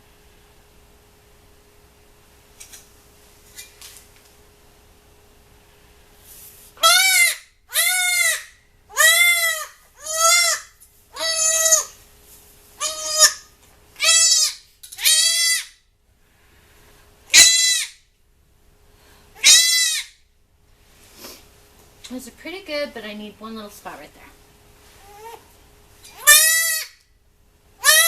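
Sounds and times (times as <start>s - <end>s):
goat kid bleating loudly: 6.8s - 12.0s, 12.8s - 15.7s, 17.3s - 18.0s, 19.4s - 20.2s, 26.2s - 27.0s, 27.8s - 28.0s.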